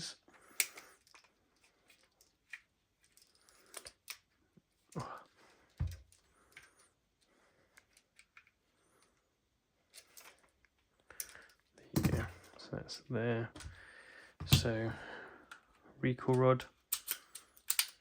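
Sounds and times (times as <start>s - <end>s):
clicks of pistol parts handled: 0.5s - 5.0s, 7.7s - 8.6s, 16.3s - 18.0s.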